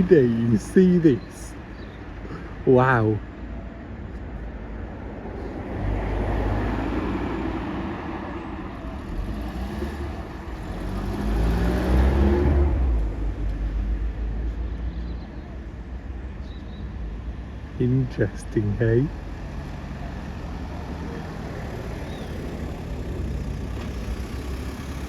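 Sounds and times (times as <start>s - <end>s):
car passing: 4.9s - 14.6s, 17.5s - 25.0s
vehicle passing close: 5.5s - 14.3s, 19.0s - 25.0s.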